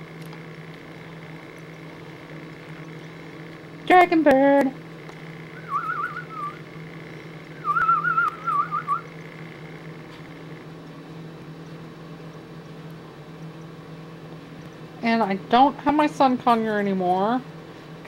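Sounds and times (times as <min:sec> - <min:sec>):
steady low hum: 0:00.0 - 0:18.0
warbling whistle: 0:05.6 - 0:06.6, 0:07.6 - 0:09.1.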